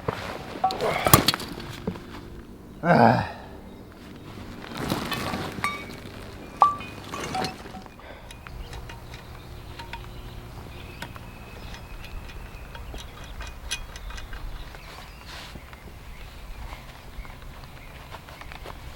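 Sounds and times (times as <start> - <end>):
faint rustling: 0.0 - 8.6.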